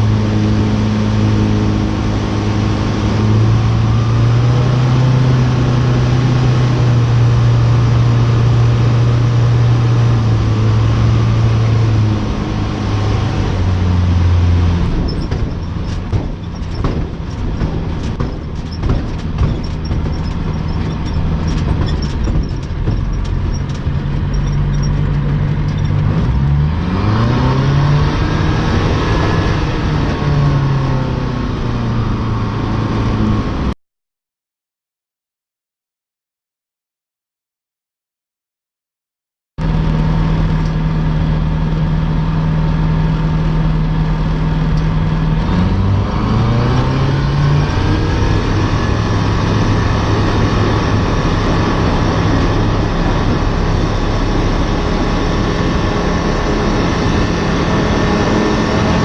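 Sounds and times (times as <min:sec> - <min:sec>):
light aircraft engine and propeller: 0:00.0 - 0:33.7, 0:39.6 - 0:59.0
rattling knocks: 0:14.6 - 0:26.3.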